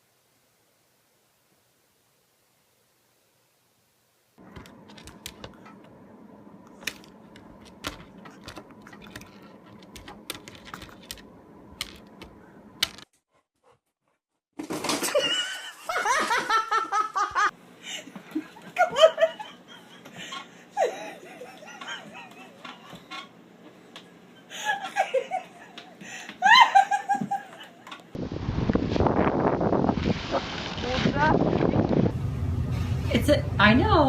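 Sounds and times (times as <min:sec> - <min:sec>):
person laughing loudly: 0:15.0 - 0:17.5, 0:18.3 - 0:23.0, 0:24.5 - 0:27.8
low hum: 0:28.2 - 0:34.0.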